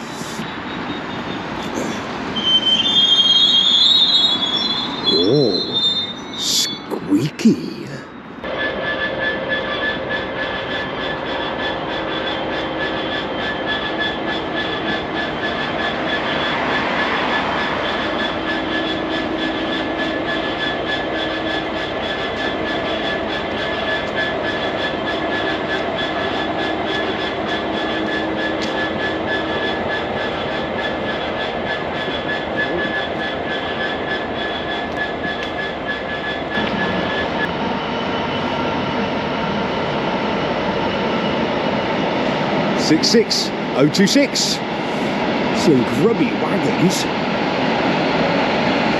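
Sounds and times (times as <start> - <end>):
high-pitched wheel squeal: 0.0 - 7.2, 8.1 - 48.9
train wagons rumbling: 0.0 - 48.9.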